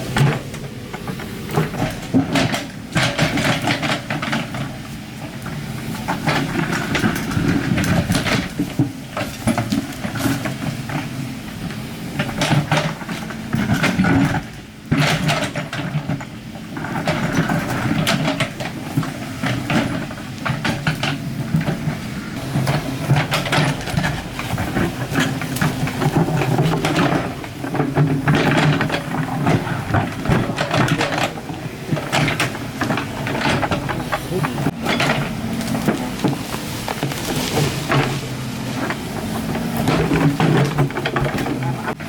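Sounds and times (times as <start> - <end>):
excavator diesel engine running: 0.0 - 42.0
knocks and scrapes: 22.4 - 42.0.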